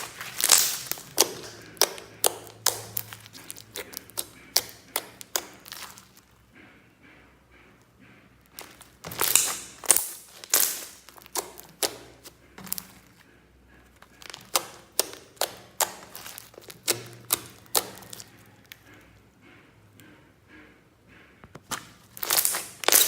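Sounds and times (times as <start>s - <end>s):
slime popping and clicking: 0.0s - 6.2s, 8.6s - 13.1s, 14.1s - 18.8s, 21.7s - 23.0s.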